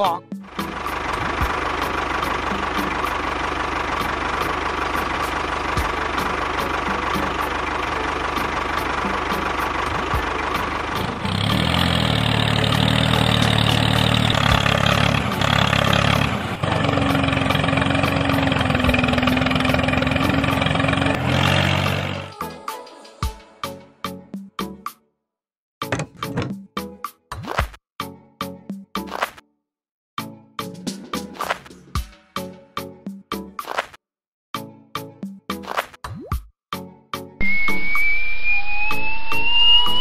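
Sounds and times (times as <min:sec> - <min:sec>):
tractor engine running: 0:00.5 - 0:22.3, 0:25.9 - 0:26.6.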